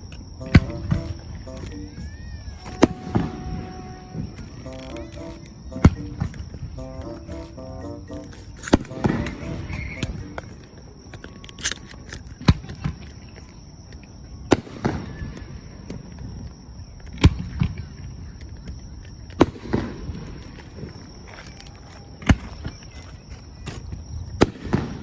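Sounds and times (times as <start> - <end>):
fireworks bursting: 0.0 - 10.9.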